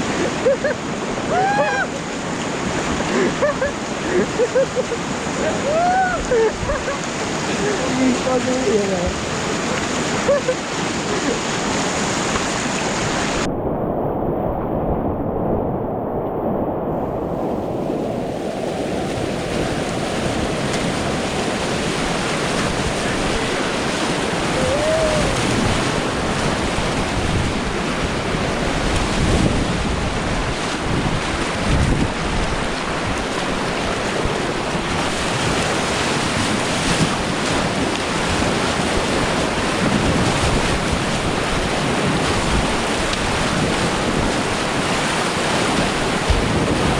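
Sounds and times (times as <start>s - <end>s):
river whitewater rushing: 0.0s - 13.5s, 17.0s - 46.9s
wind noise on microphone: 11.6s - 46.9s.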